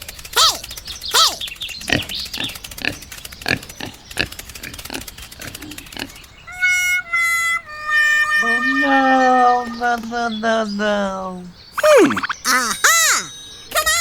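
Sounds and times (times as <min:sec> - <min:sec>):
short grunting sounds: 0:00.4 - 0:01.5, 0:11.8 - 0:13.4
animal-like calls: 0:00.4 - 0:03.0, 0:11.8 - 0:14.0
music: 0:06.5 - 0:09.6.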